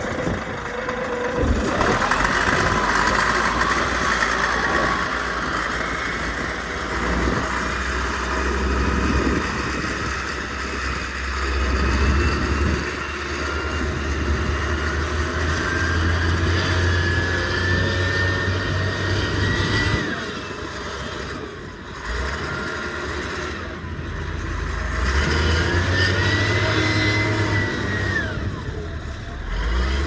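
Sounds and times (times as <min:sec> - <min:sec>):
engine running with low hum: 0:00.0 - 0:30.0.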